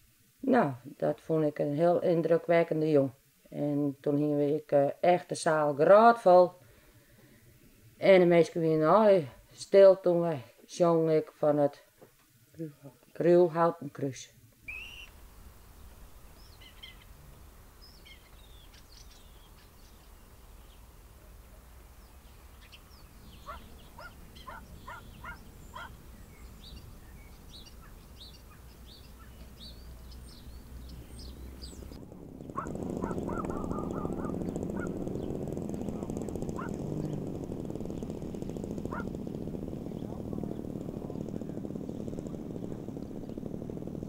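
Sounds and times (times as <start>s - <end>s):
small birds chirping: 14.6s - 44.0s
low steady rumble: 14.7s - 44.0s
loud rumbling with low hum: 20.3s - 44.0s.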